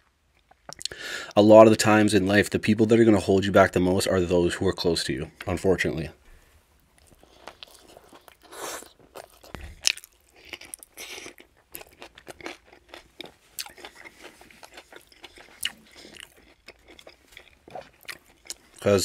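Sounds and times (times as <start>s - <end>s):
person chewing crunchy food: 0.2s - 1.0s, 6.9s - 18.9s.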